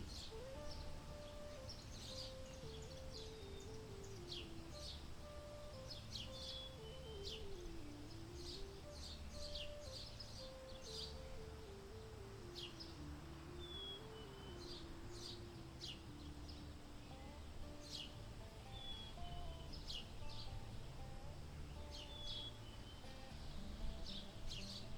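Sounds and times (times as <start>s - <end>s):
soft ambient music: 0.0s - 24.9s
bird chirps and whistles: 0.1s - 11.4s, 12.4s - 16.0s.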